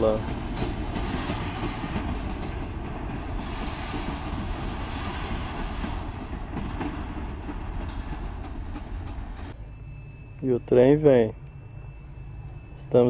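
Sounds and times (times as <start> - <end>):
wheels clattering over rail joints: 0.0 - 9.6
freight train rolling past: 0.0 - 13.0.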